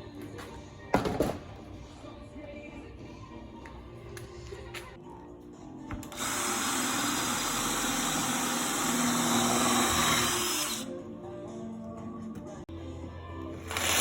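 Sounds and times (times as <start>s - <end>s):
power tool running: 6.0s - 10.9s, 13.7s - 14.0s.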